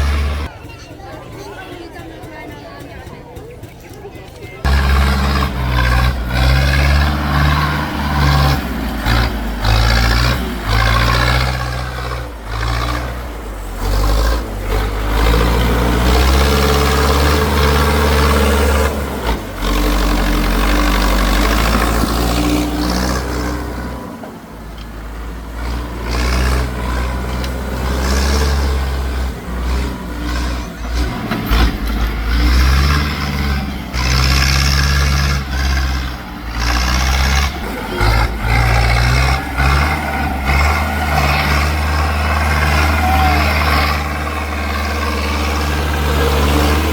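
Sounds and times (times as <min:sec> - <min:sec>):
tractor engine revving: 0:00.0 - 0:46.9.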